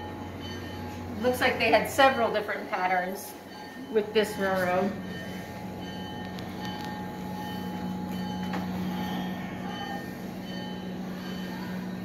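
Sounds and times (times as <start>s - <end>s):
moving train hum and rumble: 0.0s - 12.0s.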